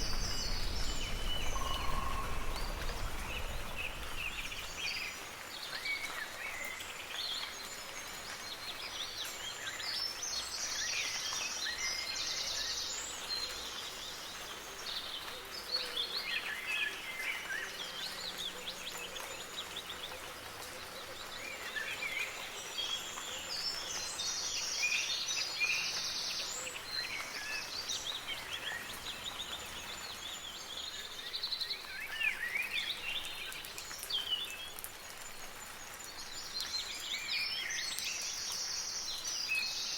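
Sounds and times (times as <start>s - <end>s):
songbirds chirping and trilling: 0.0s - 5.5s
soft rain hiss: 0.0s - 39.9s.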